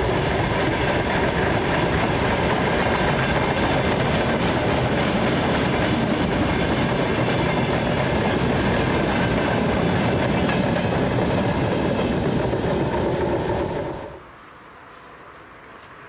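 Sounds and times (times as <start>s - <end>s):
train wheels clattering: 0.0s - 14.2s.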